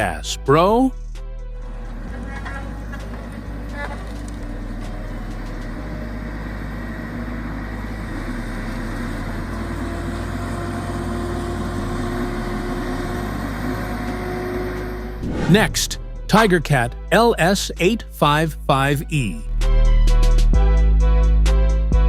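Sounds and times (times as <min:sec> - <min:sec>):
heavy machine engine running: 0:01.6 - 0:16.8.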